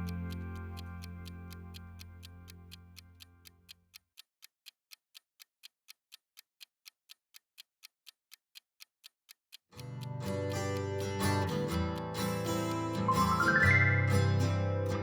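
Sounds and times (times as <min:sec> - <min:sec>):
background music: 0:00.0 - 0:02.8, 0:10.2 - 0:15.0
countdown timer ticking: 0:00.0 - 0:03.8, 0:09.7 - 0:15.0.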